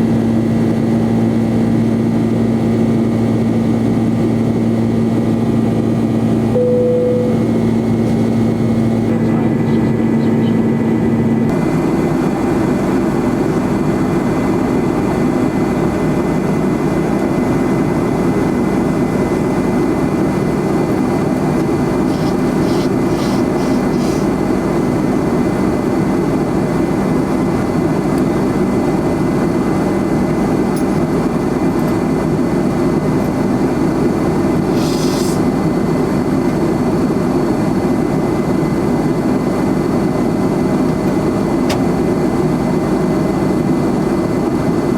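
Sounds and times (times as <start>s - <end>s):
jet engine roar in cabin: 0.0s - 44.9s
thin high whine: 6.5s - 9.2s, 22.0s - 24.3s.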